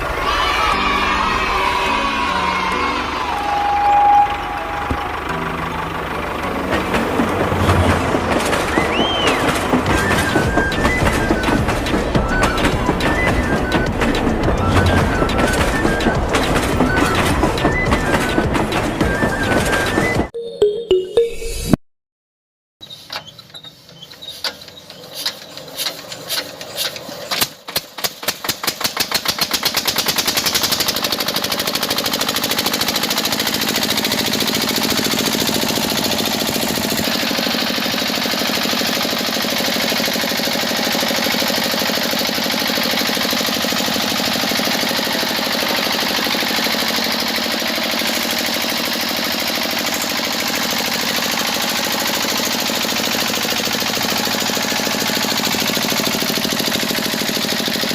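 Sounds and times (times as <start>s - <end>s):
small engine starting: 4.1s - 20.3s, 22.9s - 57.9s.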